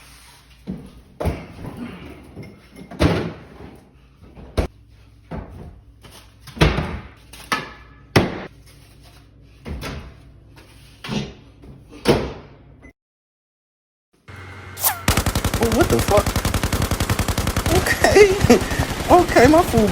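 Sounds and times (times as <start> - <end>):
microwave humming: 14.3 - 16.2.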